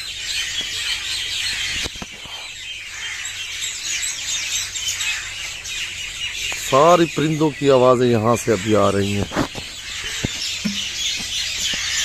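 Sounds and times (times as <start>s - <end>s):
chorus of birds chirping: 0.0s - 12.0s.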